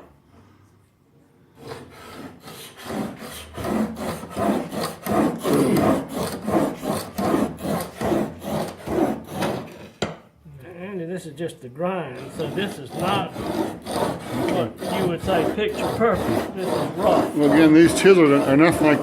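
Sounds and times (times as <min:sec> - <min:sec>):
chisel grinding on sharpening stone: 0:01.6 - 0:09.7, 0:12.2 - 0:19.0.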